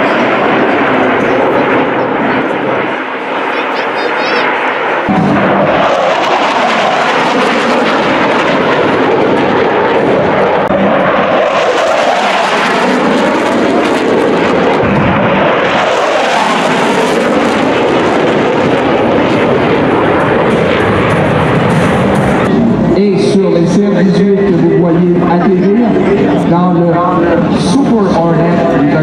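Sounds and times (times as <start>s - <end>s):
jet engine roar: 0.0s - 29.0s.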